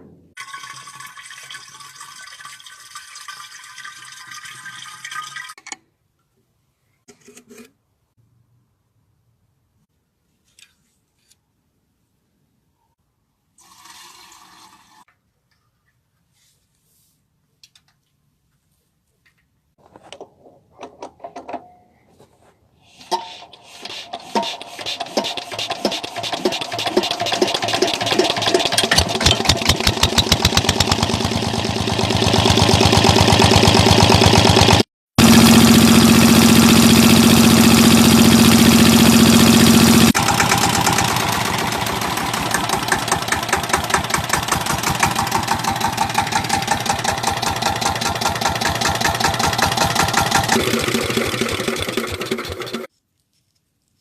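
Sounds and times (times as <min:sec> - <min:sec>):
diesel engine running: 0:25.2 - 0:52.9.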